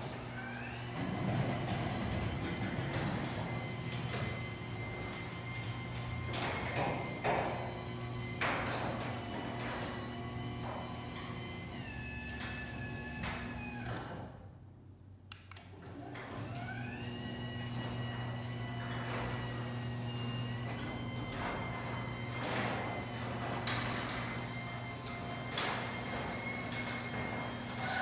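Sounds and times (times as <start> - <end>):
garage door opener whine: 0.0 - 14.6, 15.7 - 28.0.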